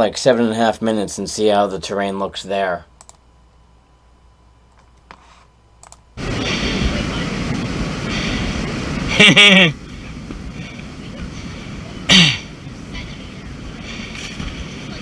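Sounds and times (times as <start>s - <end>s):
faint clicks: 3.0s - 3.2s, 5.8s - 6.0s
loud steady rushing noise: 6.2s - 15.0s.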